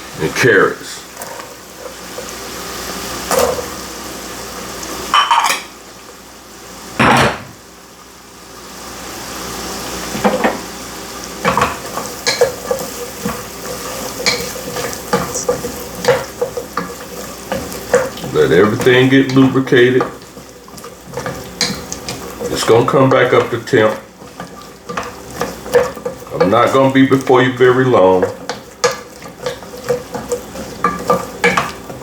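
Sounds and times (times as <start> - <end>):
vegetables sizzling in butter: 0.0 - 32.0
utensil knocking and scraping pot: 11.4 - 32.0.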